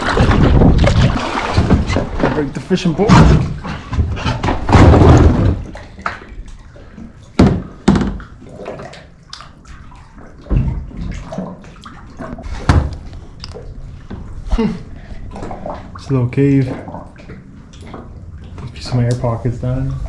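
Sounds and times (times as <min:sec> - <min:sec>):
water sloshing and slapping: 0:00.0 - 0:20.0
sharp hollow thumps: 0:03.0 - 0:05.7.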